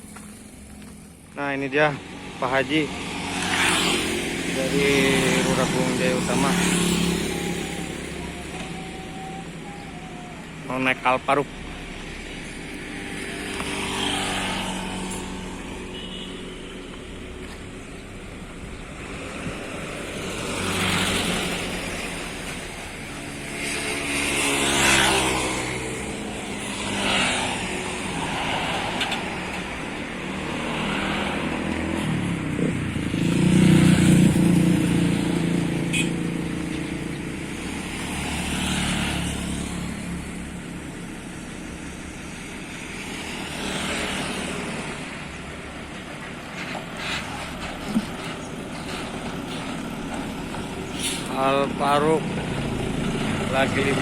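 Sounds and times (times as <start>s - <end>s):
bus engine revving: 44.8s - 54.0s.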